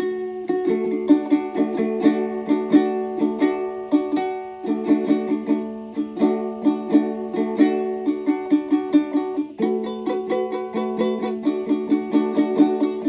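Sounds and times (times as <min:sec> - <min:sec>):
plucked ukulele notes: 0:00.0 - 0:13.0.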